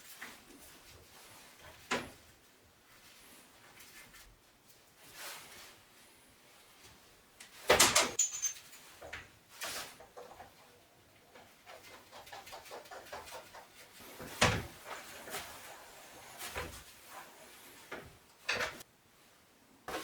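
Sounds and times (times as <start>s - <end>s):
metal parts knocking and clanking: 7.8s - 9.2s.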